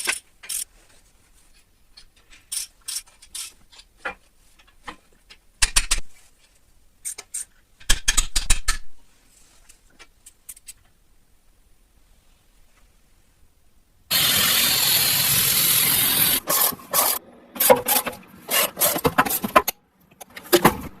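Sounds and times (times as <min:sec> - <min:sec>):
rapid ratcheting: 0:14.1 - 0:16.5.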